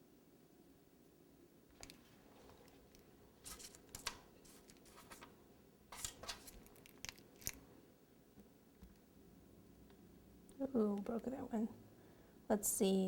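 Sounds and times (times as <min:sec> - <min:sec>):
faint clicks and scrapes: 0:01.8 - 0:05.3.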